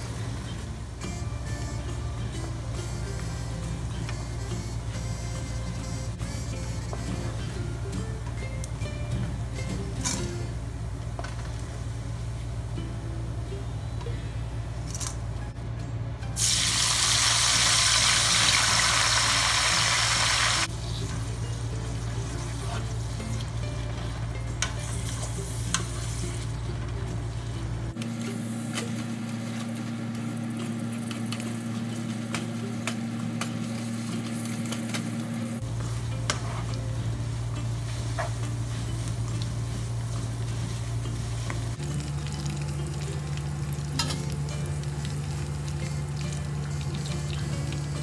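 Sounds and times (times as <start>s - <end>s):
low steady hum: 0.0s - 48.0s
leaves sizzling in oil: 16.4s - 48.0s.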